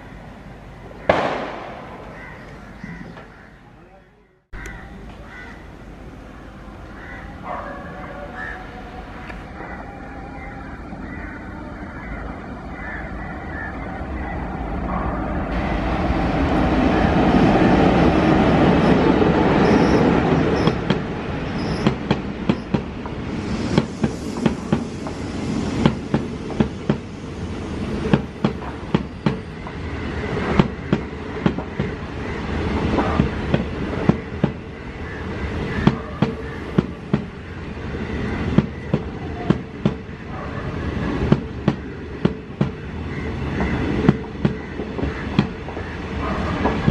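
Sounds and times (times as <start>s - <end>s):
train wheels clacking on rail joints: 32.7s - 34.6s, 41.2s - 46.9s.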